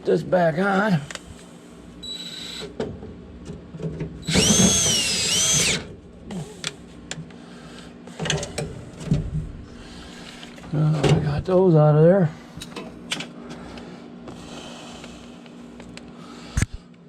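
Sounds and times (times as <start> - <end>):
cordless drill driving screw: 4.2 - 5.9.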